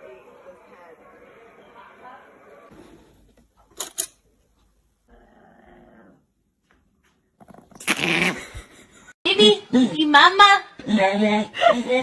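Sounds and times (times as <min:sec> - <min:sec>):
dog growling: 0:05.1 - 0:06.3.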